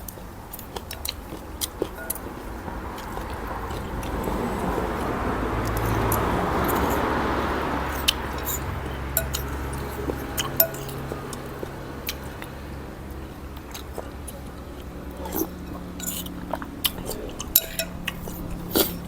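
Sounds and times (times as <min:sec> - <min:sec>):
utensils clinking against a bowl: 0:00.0 - 0:19.0
rushing noise: 0:02.0 - 0:13.1.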